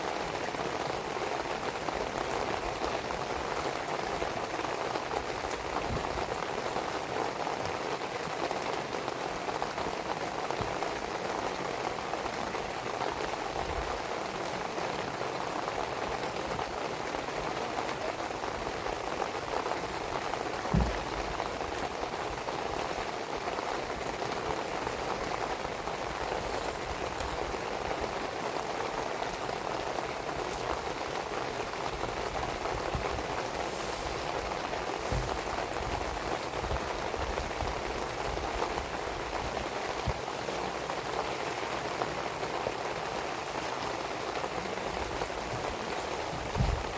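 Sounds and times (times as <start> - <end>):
steady rain falling: 0.0 - 46.9
low thump: 20.7 - 21.4
wood fire popping: 20.7 - 21.8.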